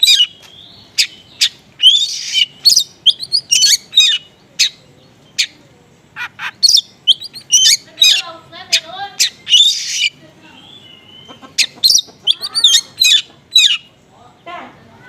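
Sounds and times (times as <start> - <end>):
bird singing chirps and whistles: 0.0 - 5.6, 6.5 - 8.2, 8.8 - 11.3.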